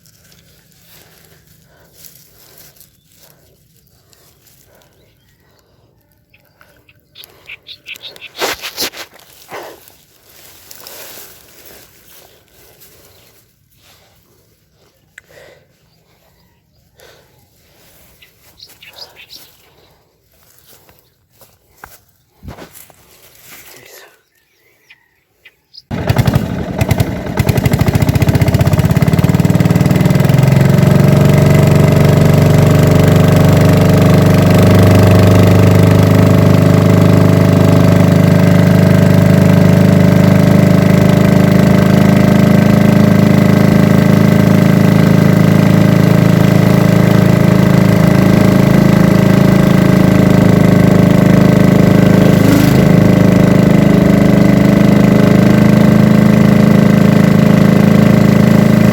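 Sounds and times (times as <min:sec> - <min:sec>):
small engine starting and running: 0:00.0 - 0:16.2, 0:17.0 - 0:21.5, 0:25.9 - 0:58.9.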